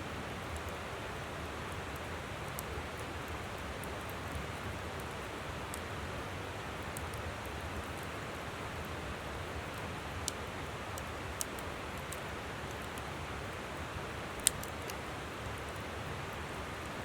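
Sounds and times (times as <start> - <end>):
campfire crackling and popping: 1.7 - 8.2, 8.8 - 13.6, 14.2 - 15.9.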